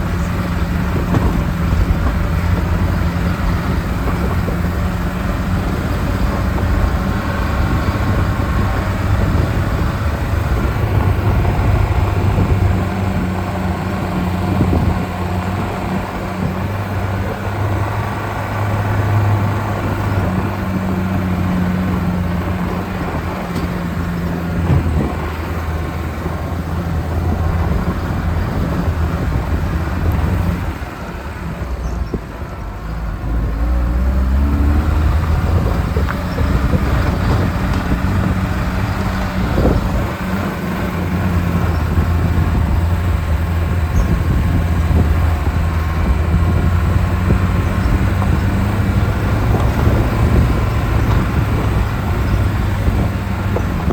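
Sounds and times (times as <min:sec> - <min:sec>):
car engine revving under load: 0:00.0 - 0:53.9.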